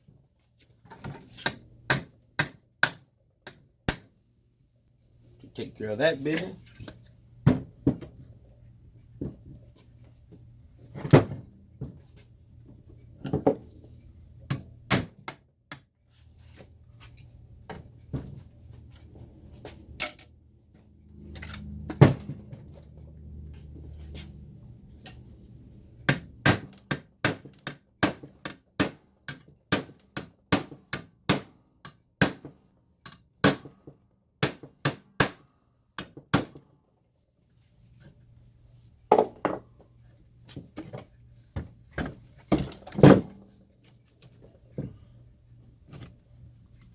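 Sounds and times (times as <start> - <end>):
hammer striking metal chassis: 20.0 - 20.3.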